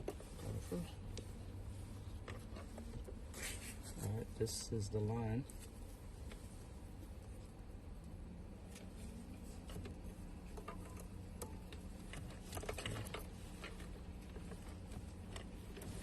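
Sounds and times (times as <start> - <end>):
steady low hum: 0.0 - 16.0
parts clicking and rattling: 8.7 - 16.0.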